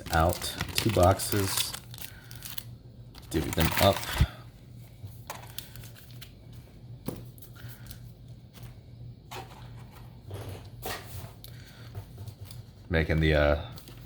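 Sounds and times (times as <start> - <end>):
foil packs rustling: 0.0 - 4.4, 5.2 - 6.4.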